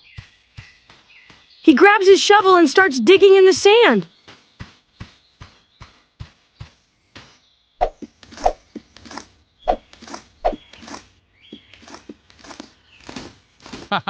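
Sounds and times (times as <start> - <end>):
shovel digging in sand: 7.8 - 13.9.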